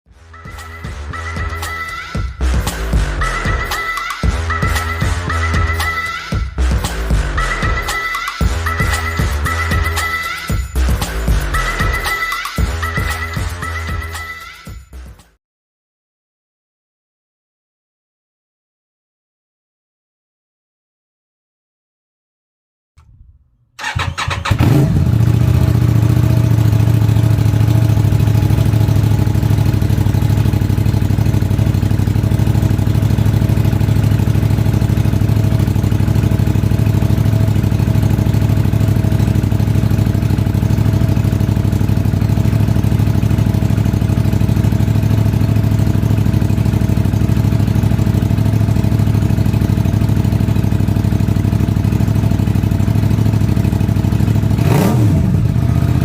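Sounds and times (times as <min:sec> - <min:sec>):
motorcycle engine idling: 0:23.0 - 0:56.0.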